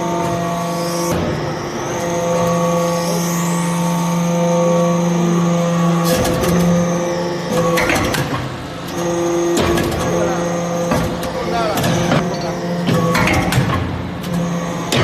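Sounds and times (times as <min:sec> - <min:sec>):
baler machine hum: 0:00.0 - 0:15.0
machine knocking and clanking: 0:04.1 - 0:15.0.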